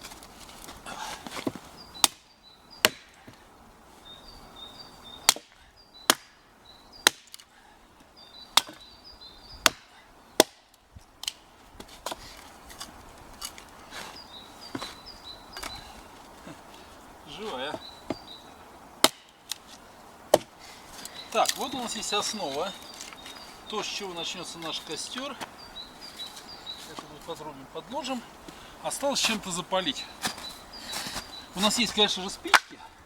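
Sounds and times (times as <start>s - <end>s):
hatchet chopping firewood: 0.0s - 3.4s, 5.2s - 6.4s, 7.0s - 7.6s, 8.5s - 8.9s, 9.6s - 14.1s, 19.0s - 21.9s, 32.5s - 32.8s.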